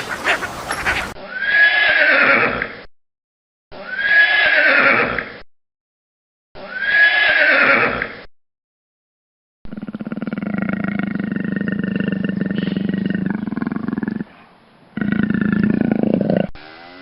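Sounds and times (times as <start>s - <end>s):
horse whinnying: 0.7s - 2.6s, 3.8s - 5.2s, 6.6s - 8.1s.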